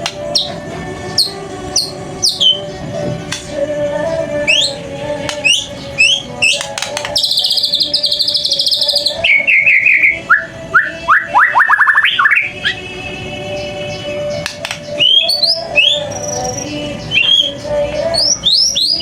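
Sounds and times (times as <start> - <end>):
bird singing whistles and trills: 0.0 - 2.8, 4.4 - 19.0.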